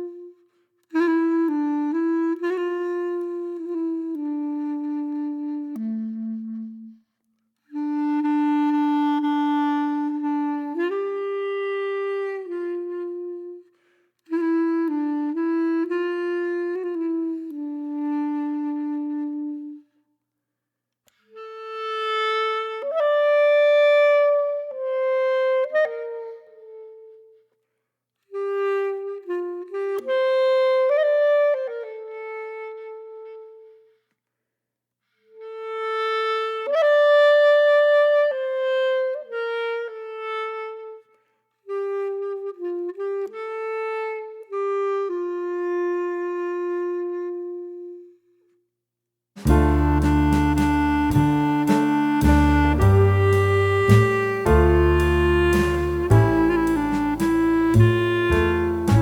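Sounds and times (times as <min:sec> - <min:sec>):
solo wind instrument melody: 0:00.0 - 0:07.0, 0:07.7 - 0:13.7, 0:14.3 - 0:19.9, 0:28.4 - 0:33.8, 0:41.7 - 0:48.2, 0:49.4 - 0:59.0.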